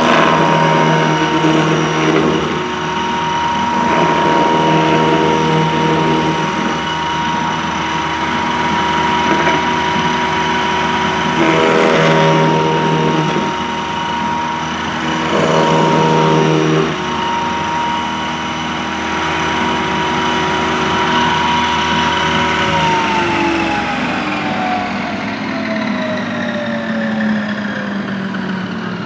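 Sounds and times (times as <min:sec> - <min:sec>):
sanding machine motor whirring: 0:00.0 - 0:29.0.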